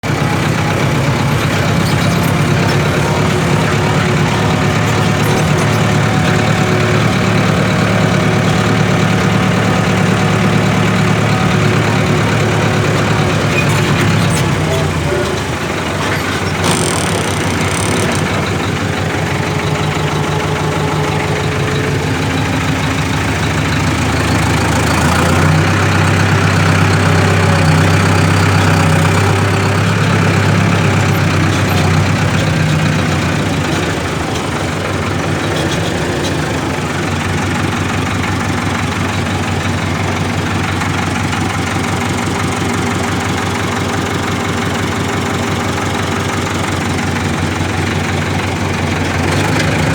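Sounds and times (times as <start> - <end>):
tractor engine running: 0.0 - 49.9.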